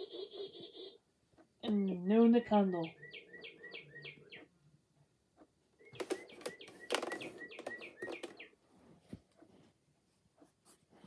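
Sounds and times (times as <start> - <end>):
bird clock whistled birdsong: 0.0 - 1.0, 1.7 - 4.6, 5.7 - 8.6.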